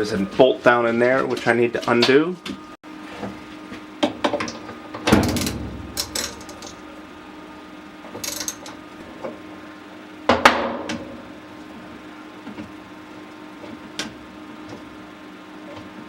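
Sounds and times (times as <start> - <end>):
metal clanks: 5.1 - 6.8.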